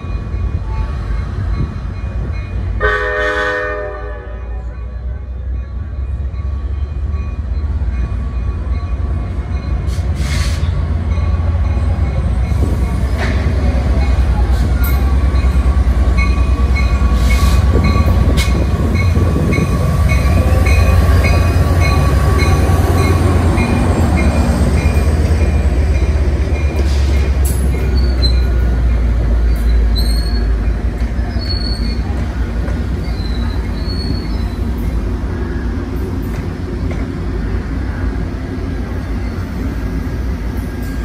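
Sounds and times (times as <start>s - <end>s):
train low rumble: 0.0s - 41.0s
wheels squealing: 31.2s - 32.1s, 33.0s - 34.8s.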